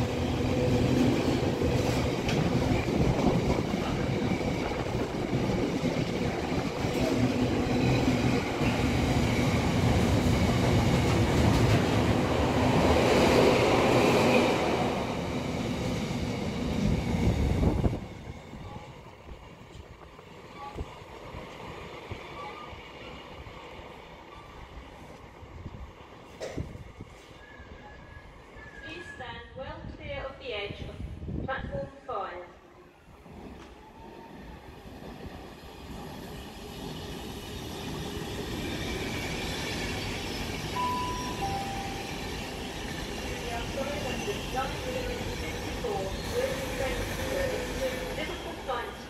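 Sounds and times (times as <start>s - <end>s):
freight train wagons rumbling: 0.0s - 21.6s, 33.2s - 49.0s.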